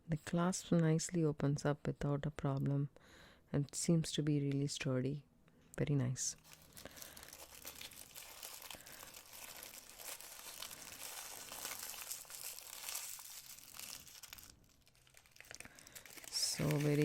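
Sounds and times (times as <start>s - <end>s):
packaging crinkling: 6.4s - 17.0s.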